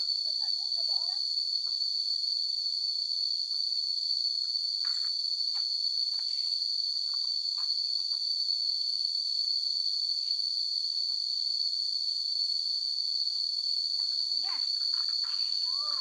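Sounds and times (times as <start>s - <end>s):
high-pitched insect drone: 11.6s - 16.0s.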